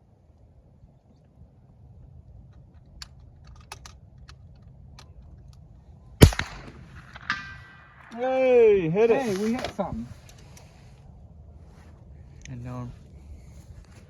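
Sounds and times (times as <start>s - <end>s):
rifle shot: 6.2s - 8.6s.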